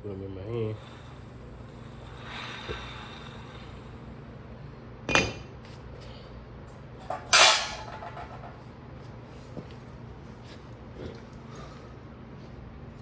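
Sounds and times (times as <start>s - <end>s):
metal tools clanking: 7.0s - 8.5s.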